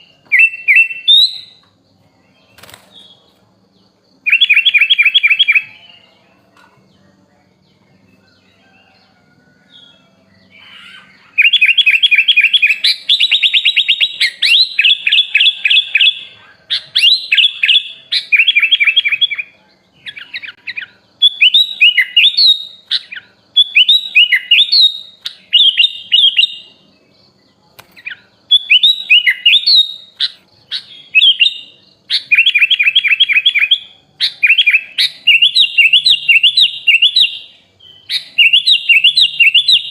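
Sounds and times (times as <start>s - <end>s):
bird whistled phrases: 0.0s - 1.6s, 10.5s - 19.5s, 20.1s - 26.8s, 28.0s - 39.9s.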